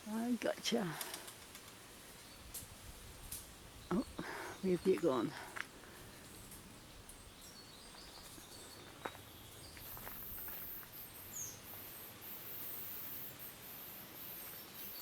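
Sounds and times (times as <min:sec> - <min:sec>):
small birds calling: 0:03.6 - 0:15.0
faint high hiss: 0:09.4 - 0:15.0.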